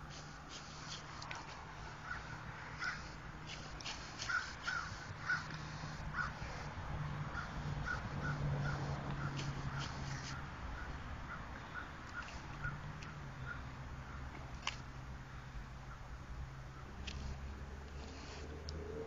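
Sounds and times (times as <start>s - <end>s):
steady low hum: 0.0s - 18.6s
bird calling: 0.1s - 6.7s, 7.3s - 14.4s.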